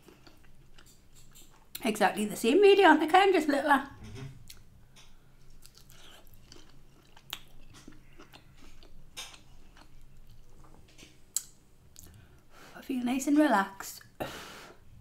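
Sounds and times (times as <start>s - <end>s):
person chewing: 0.0s - 1.8s, 4.4s - 12.2s.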